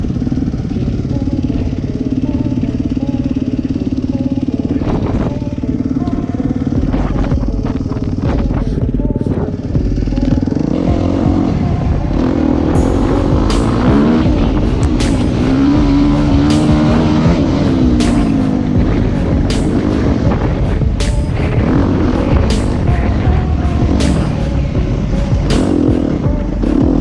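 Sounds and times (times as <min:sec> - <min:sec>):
dirt bike engine running: 0:12.8 - 0:27.0.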